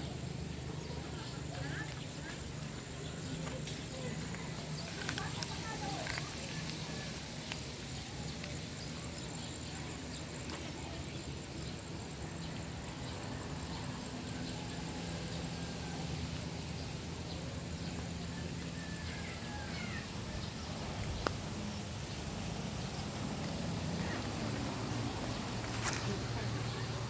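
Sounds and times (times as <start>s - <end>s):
low engine hum: 0.0s - 27.0s.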